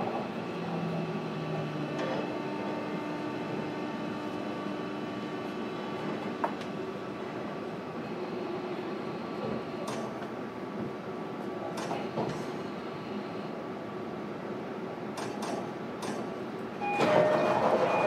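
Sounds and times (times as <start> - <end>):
train wheels rolling on track: 0.0 - 7.7, 15.2 - 18.0
motor hum and whine: 0.0 - 10.0.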